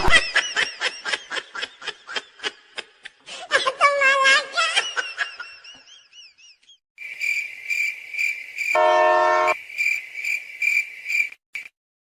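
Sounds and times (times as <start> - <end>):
crickets chirping: 7.0 - 11.7
train horn blast: 8.8 - 9.6.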